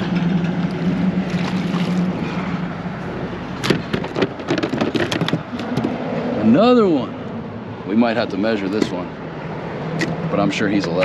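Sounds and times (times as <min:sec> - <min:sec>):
low motor hum: 0:00.0 - 0:06.4
sharp knocks and clatters: 0:03.6 - 0:06.0.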